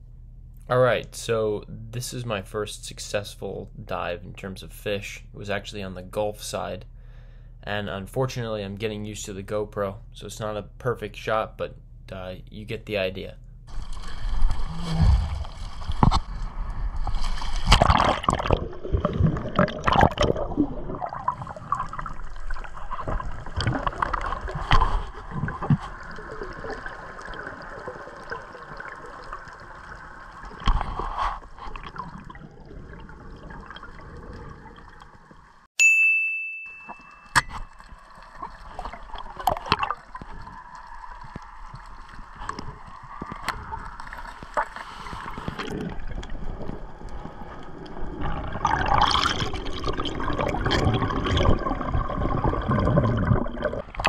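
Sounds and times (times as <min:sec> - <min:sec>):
water splashing: 0:13.7 - 0:35.6, 0:37.4 - 0:54.0
muffled underwater rush: 0:13.7 - 0:35.7, 0:37.9 - 0:54.0
sharp ding: 0:35.8 - 0:37.7.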